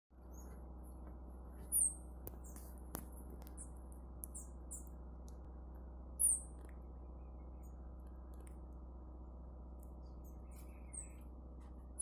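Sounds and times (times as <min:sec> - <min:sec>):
steady low hum: 0:00.1 - 0:12.0
small birds chirping: 0:00.2 - 0:00.7, 0:01.5 - 0:05.5, 0:06.1 - 0:08.8, 0:09.8 - 0:12.0.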